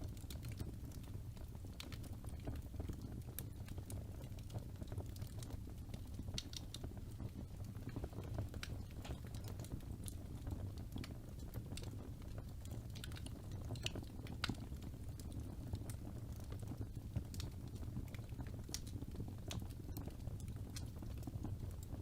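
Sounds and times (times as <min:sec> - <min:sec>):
fire crackles and pops: 0:00.0 - 0:22.0
low rumble of flames: 0:00.0 - 0:22.0.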